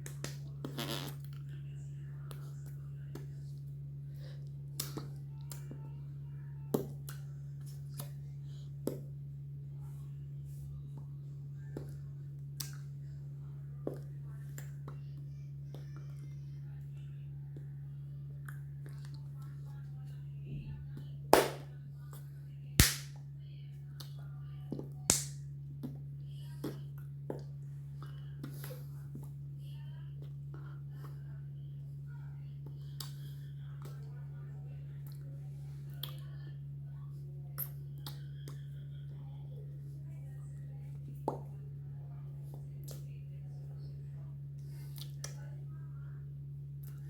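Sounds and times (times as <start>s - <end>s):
steady low hum: 0.0s - 47.0s
sharp smacks: 21.4s - 21.7s, 22.8s - 23.2s, 25.1s - 25.4s.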